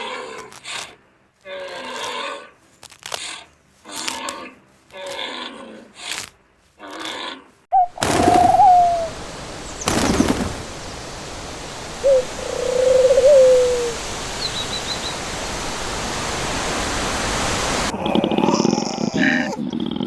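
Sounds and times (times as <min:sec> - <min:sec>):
animal's drawn-out call: 0:00.0 - 0:09.1
steady background hiss: 0:07.6 - 0:17.9.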